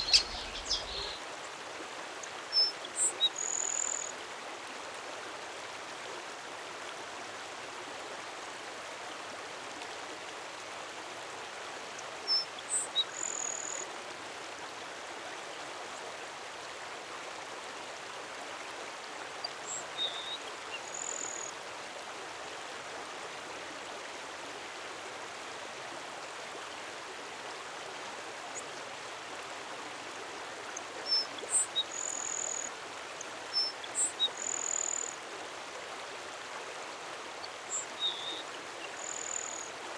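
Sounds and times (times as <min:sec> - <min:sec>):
songbird singing high notes: 0:00.0 - 0:01.2.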